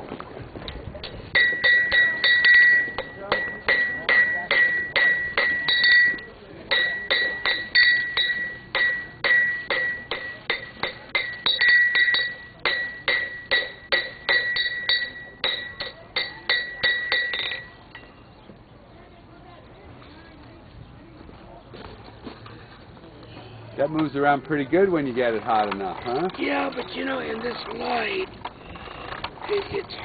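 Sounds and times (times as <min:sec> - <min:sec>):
hammer striking iron on anvil: 0:01.4 - 0:17.7.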